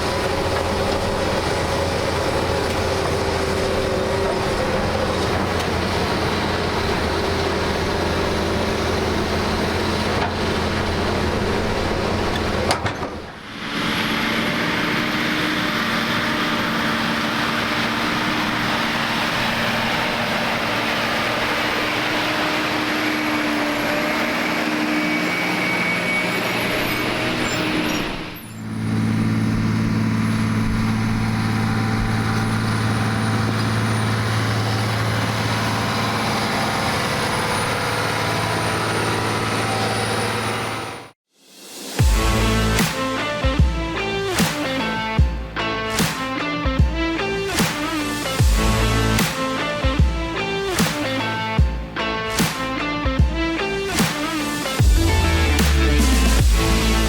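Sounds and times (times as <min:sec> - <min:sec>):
heavy machinery engines running: 0:00.0 - 0:41.2, 0:42.0 - 0:57.0.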